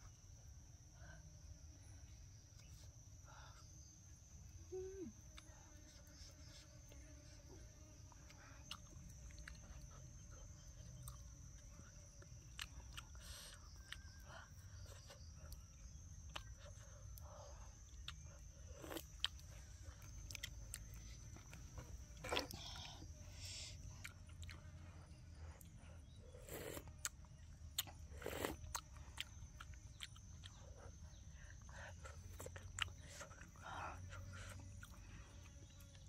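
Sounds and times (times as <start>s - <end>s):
soft chewing: 2.3s - 36.0s.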